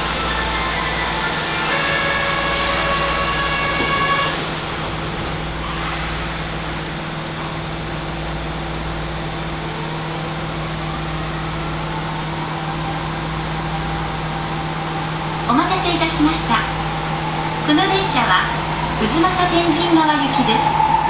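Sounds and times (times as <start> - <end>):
train running hum: 0.0 - 21.0.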